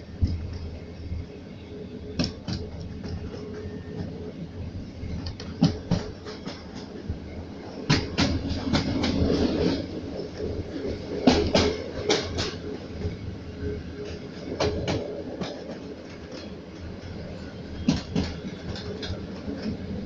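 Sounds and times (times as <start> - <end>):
train rolling rumble: 0.0 - 20.0
train wheels clacking over rail joints: 5.1 - 7.0, 7.8 - 12.7, 14.0 - 20.0.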